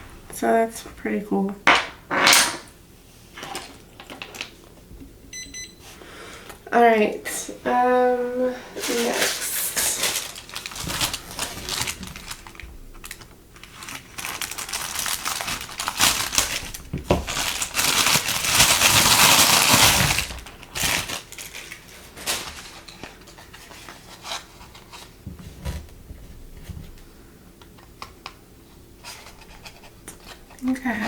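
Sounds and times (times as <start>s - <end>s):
plastic and paper crinkling: 8.6s - 27.1s
packaging rustling: 8.7s - 27.0s.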